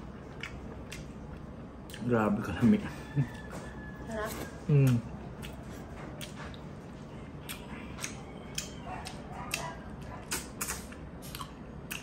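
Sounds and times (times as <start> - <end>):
mouth chewing and sucking: 4.3 - 12.0.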